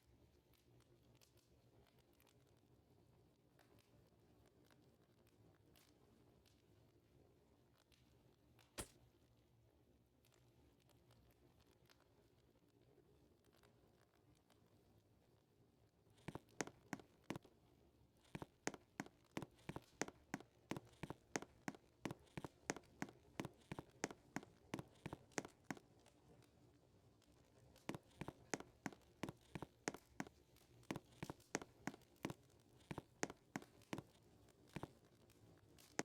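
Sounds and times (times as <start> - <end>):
footsteps walking: 18.4 - 25.8, 27.9 - 30.3, 30.9 - 34.1.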